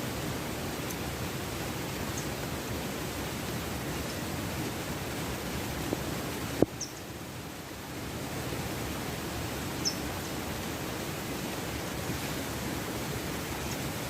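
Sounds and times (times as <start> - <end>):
heavy rain: 0.0 - 14.0
running water: 0.0 - 14.0.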